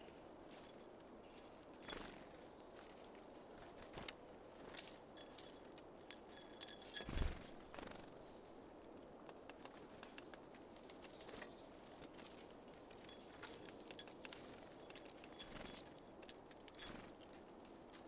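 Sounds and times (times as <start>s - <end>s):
birds tapping at seed feeder: 0.5s - 2.5s, 3.6s - 8.2s, 11.1s - 17.2s.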